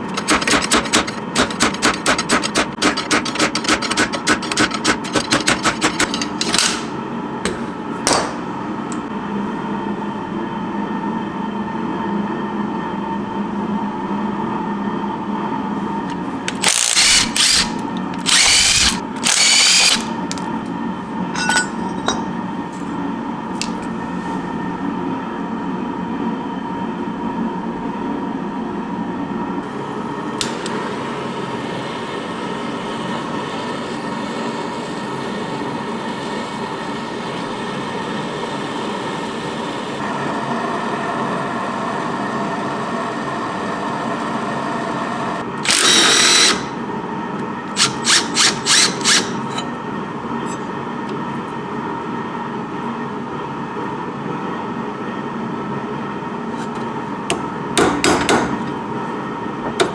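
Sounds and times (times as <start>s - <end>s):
power tool bursts: 0.0s - 8.4s, 16.0s - 20.5s, 45.2s - 46.8s, 47.7s - 49.7s.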